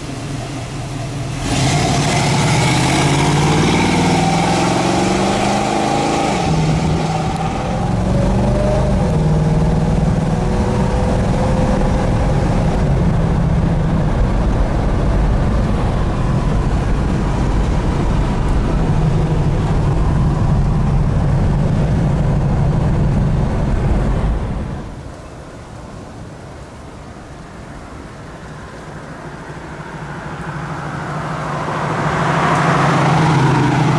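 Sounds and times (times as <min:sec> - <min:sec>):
car engine running: 0:00.0 - 0:24.9.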